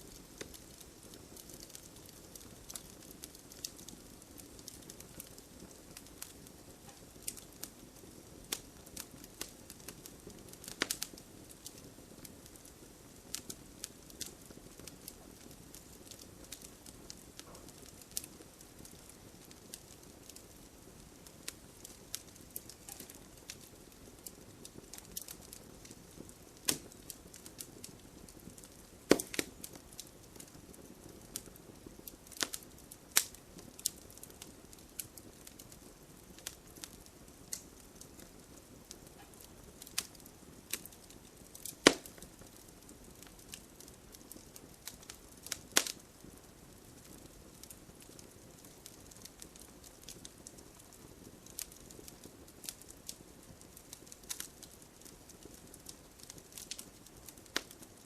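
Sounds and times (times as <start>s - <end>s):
campfire crackling: 0.0s - 58.0s.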